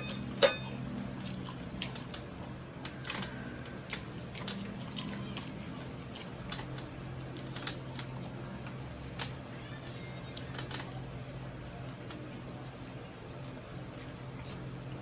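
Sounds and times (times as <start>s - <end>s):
crunchy chewing: 9.0s - 15.0s.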